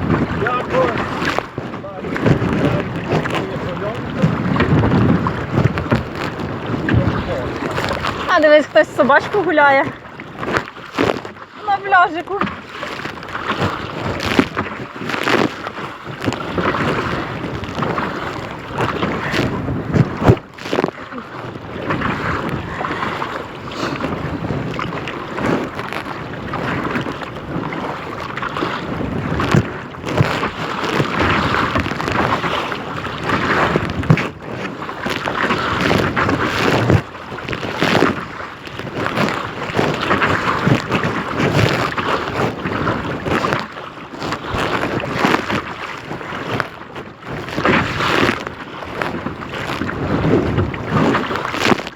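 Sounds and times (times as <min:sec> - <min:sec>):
water splashing against kayak: 0:00.0 - 0:51.9
wind buffeting microphone: 0:00.0 - 0:51.9.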